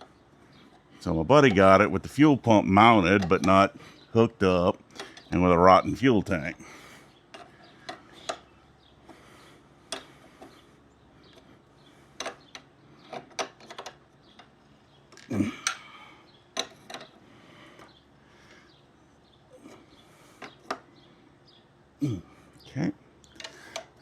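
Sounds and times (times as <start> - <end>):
hand tools clicking on metal: 3.0 - 3.7.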